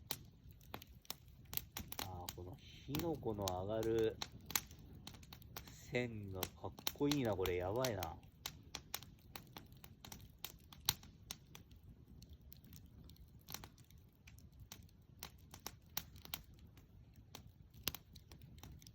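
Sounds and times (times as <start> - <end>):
bonfire crackling and popping: 0.0 - 18.9
low rumble of fire: 0.0 - 18.9.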